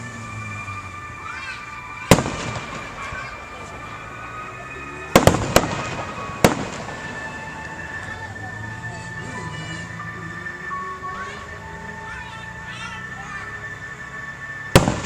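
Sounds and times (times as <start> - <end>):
fireworks bangs: 0.2 - 8.4, 14.7 - 15.0.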